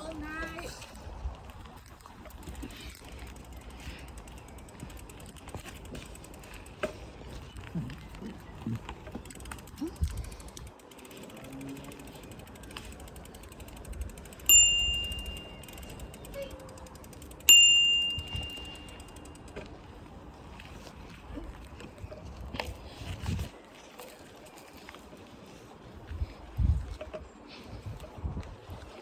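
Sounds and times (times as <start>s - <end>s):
bicycle bell ding: 14.4s - 16.8s, 17.4s - 19.4s.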